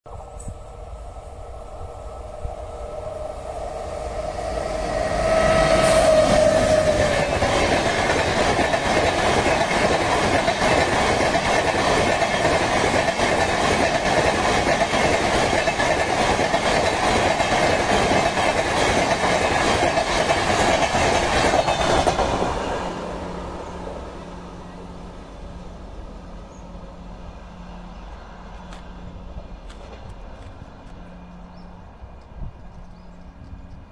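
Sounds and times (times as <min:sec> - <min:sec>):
train passing at speed: 0:00.1 - 0:33.9
wheels clattering on rails: 0:06.2 - 0:22.6.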